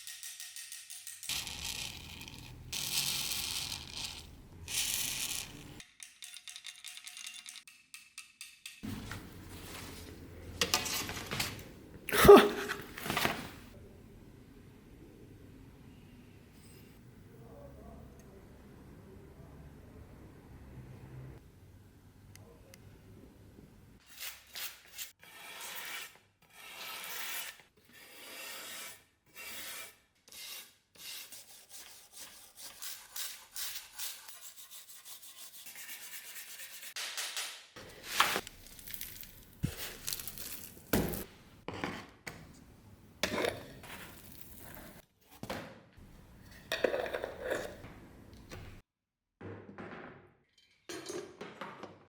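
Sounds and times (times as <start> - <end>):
sandpaper rubbing on steel blade: 24.1 - 37.0.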